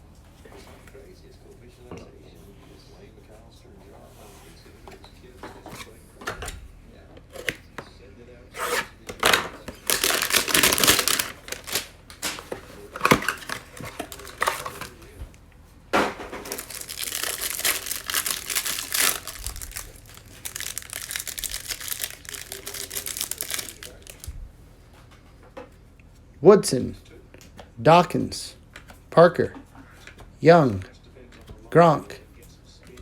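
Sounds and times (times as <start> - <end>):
plastic wrapping crinkling and tearing: 9.2 - 15.2, 16.4 - 24.3.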